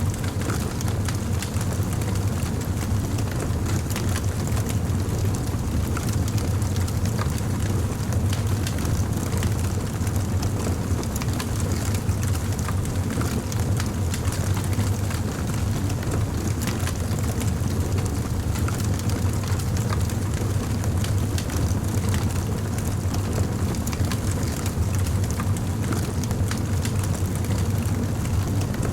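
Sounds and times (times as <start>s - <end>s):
fire crackling: 0.0s - 5.0s, 11.1s - 28.9s.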